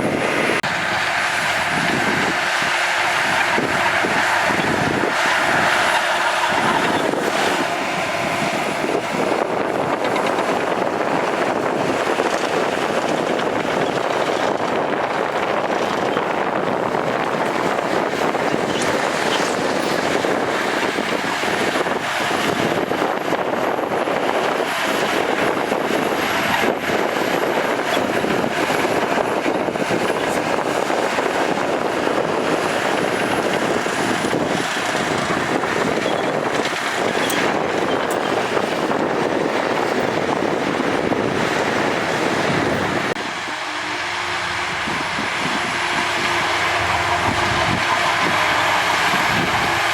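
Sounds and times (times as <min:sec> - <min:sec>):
bulldozer diesel engine: 0:00.0 - 0:49.9
earthmoving rumble and clatter: 0:00.0 - 0:49.9.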